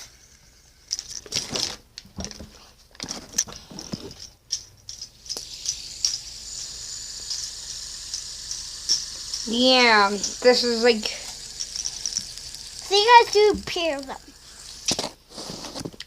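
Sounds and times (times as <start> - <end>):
small hard objects clicking and rattling: 0.8 - 16.0
faint high-pitched hiss: 5.2 - 15.9.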